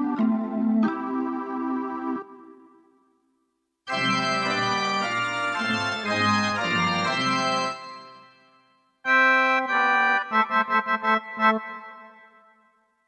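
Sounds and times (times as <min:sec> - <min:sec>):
keyboard playing sustained chords: 0:00.0 - 0:02.8.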